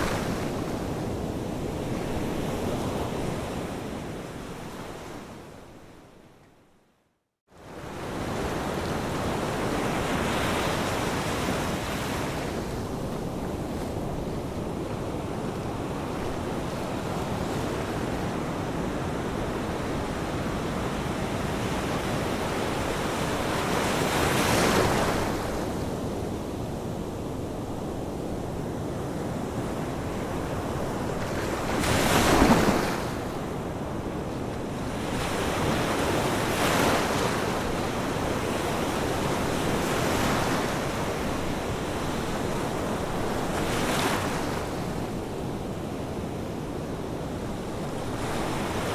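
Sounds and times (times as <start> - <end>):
ocean waves breaking: 31.1 - 33.4.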